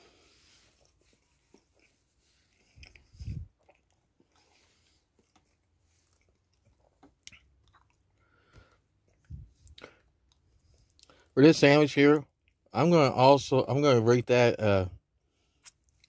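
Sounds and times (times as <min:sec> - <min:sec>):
man chewing food: 0:00.0 - 0:11.4, 0:12.3 - 0:12.7, 0:15.2 - 0:16.0.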